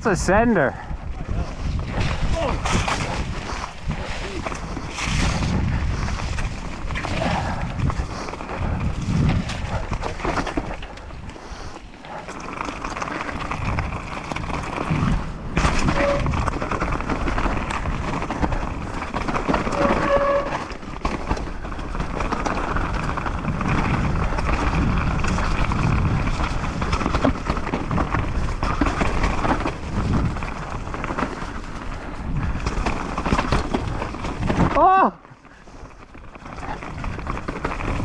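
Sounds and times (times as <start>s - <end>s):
bike rattling over rough trail: 0.0s - 38.0s
wind on microphone: 0.7s - 11.4s, 13.4s - 20.8s, 22.8s - 31.2s
short squeals: 19.7s - 20.7s.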